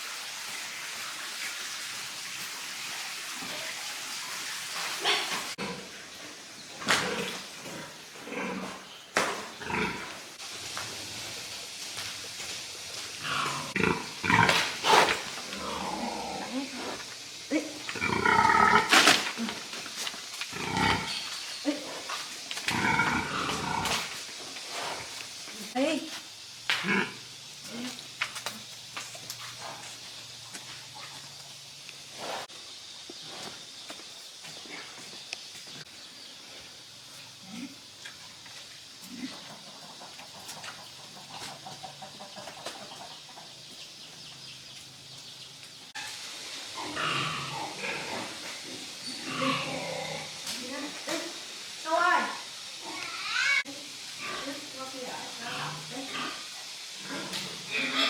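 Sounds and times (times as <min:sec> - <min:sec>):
pigs calling: 0:06.8 - 0:10.3, 0:12.9 - 0:24.2, 0:46.0 - 0:50.5, 0:52.8 - 0:54.7, 0:55.3 - 0:58.0
farm animals calling: 0:39.2 - 0:44.4.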